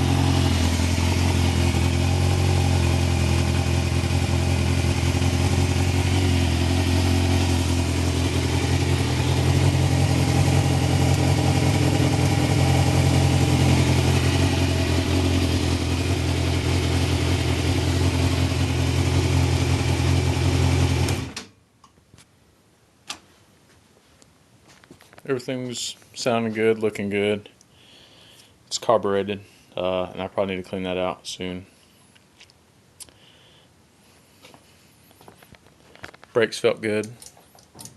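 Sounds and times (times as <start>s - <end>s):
engine idling: 0.0s - 21.4s.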